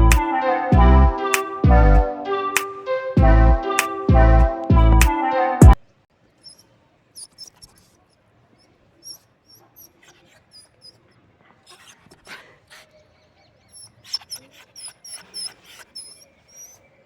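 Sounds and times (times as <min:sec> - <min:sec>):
high squeaking chirps: 0:13.7 - 0:16.8.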